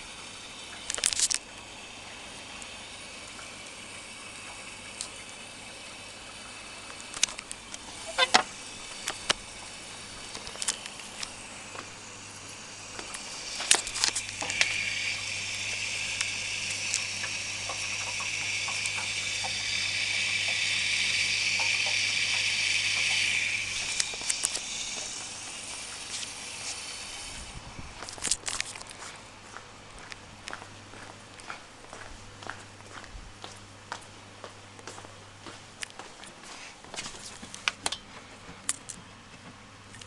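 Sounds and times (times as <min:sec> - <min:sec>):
rushing water hiss: 0:00.0 - 0:28.2
low steady hum: 0:00.0 - 0:40.0.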